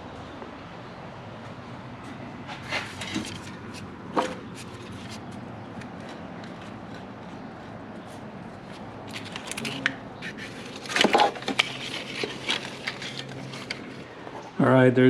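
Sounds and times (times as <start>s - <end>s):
metal clunks knocks and scrapes: 2.4s - 7.5s, 9.0s - 14.5s.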